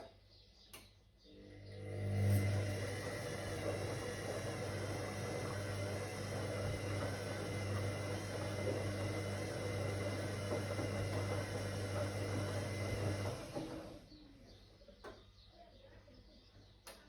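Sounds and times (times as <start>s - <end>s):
washing machine motor humming: 1.4s - 14.4s.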